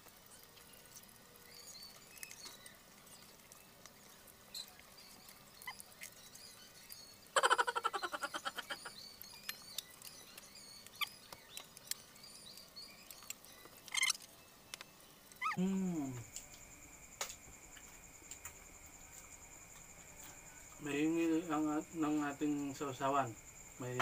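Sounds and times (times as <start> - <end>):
chewing clicks and lip smacks: 1.9 - 7.0, 8.7 - 15.6
faint steady high tone: 14.4 - 24.0.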